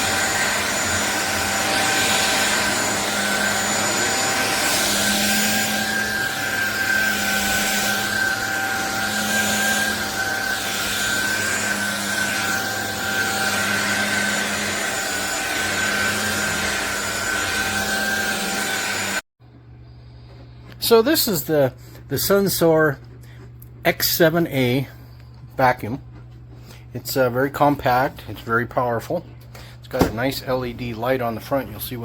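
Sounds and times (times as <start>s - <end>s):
stick vacuum cleaner running: 0.0s - 19.2s, 29.5s - 32.0s.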